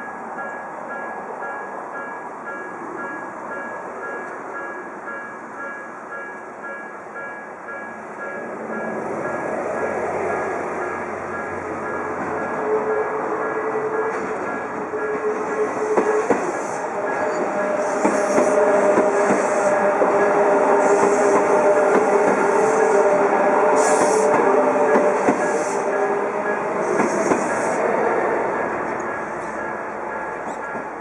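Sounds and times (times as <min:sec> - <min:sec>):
train wheels clicking over rail joints: 0:13.6 - 0:23.1, 0:23.7 - 0:27.8.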